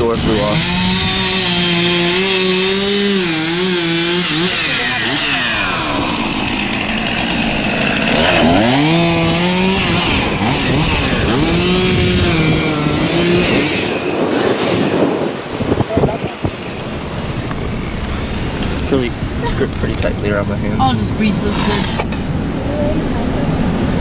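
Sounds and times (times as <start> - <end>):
chainsaw revving under load: 0.0 - 22.5.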